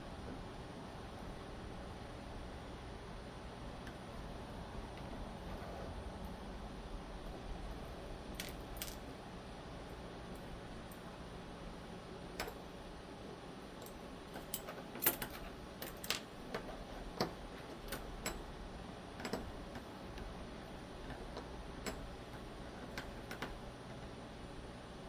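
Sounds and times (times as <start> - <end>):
small metal parts clicking: 8.4 - 9.1, 13.8 - 16.3.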